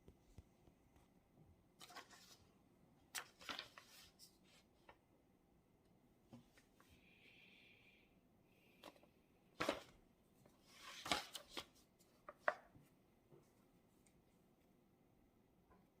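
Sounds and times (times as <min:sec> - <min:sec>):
paper rustling: 0:01.8 - 0:02.5, 0:03.1 - 0:05.0, 0:08.8 - 0:12.9.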